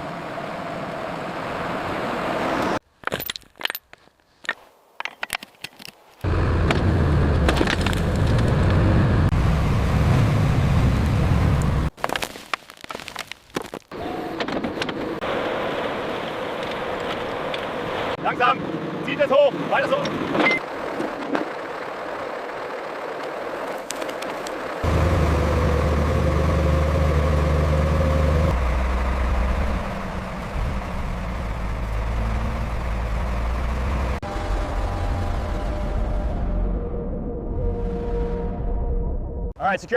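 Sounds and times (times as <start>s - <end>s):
clicks and crackles: 11.9s - 15.0s, 23.2s - 24.6s
heavy vehicle engine rumbling: 14.0s - 39.6s.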